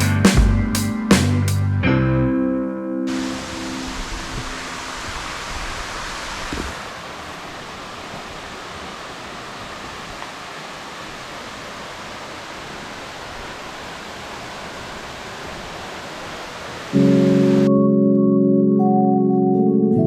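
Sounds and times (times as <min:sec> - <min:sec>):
waterfall rushing: 0:03.1 - 0:17.7.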